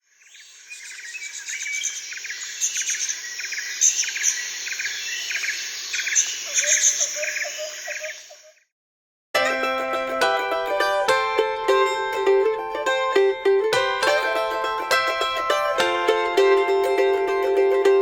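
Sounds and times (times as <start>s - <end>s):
chorus of chirping animal calls: 2.4s - 8.6s.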